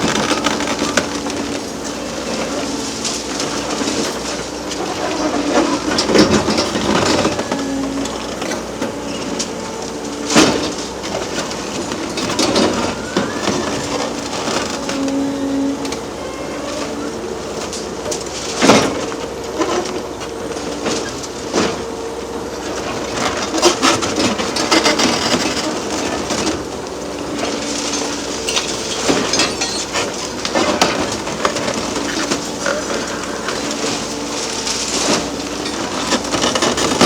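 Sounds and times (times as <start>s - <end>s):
excavator machine noise: 0.0s - 37.0s
hydraulic whine: 0.0s - 37.0s
concrete cracking and crushing: 22.6s - 37.0s.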